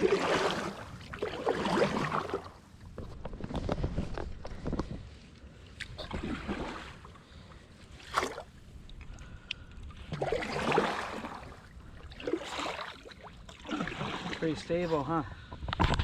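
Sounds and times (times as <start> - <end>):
kayak paddle splashing: 0.0 - 3.1, 5.8 - 15.1.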